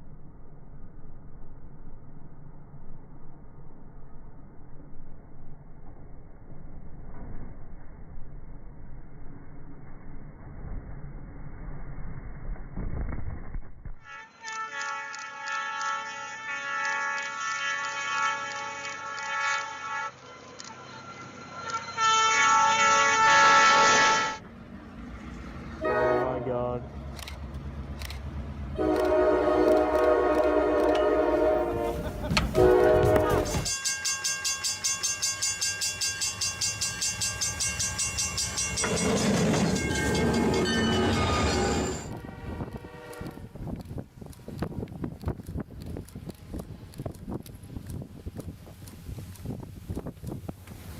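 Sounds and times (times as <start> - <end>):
rush and low rumble: 0.0 - 14.1, 41.9 - 50.9
train horn blasts: 14.1 - 20.6, 21.6 - 24.4, 25.8 - 26.8, 28.8 - 33.8, 40.2 - 43.6
train running rhythm: 26.8 - 50.9
ringing tones: 33.6 - 42.1.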